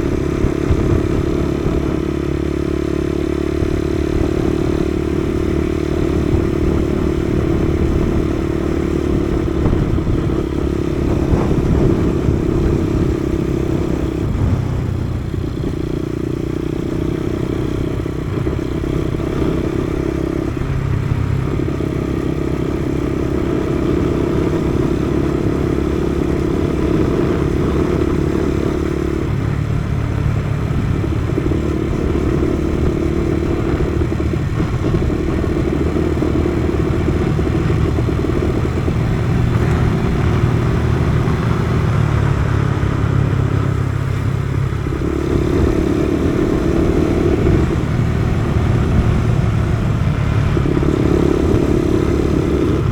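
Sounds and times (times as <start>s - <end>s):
motorcycle engine running: 0.0s - 52.9s
wind rumble on microphone: 0.0s - 52.9s.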